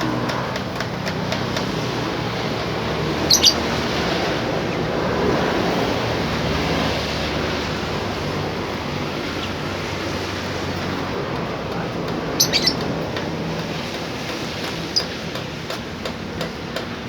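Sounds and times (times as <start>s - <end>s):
steady rushing background noise: 0.0s - 17.0s
bird chirping: 3.2s - 3.8s, 12.3s - 13.0s.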